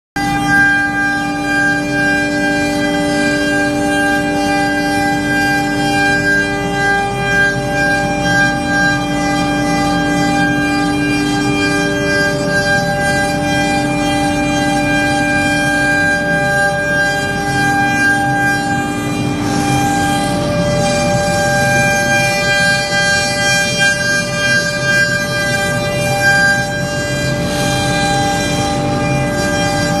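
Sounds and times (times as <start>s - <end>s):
router spindle whine: 0.2s - 30.0s.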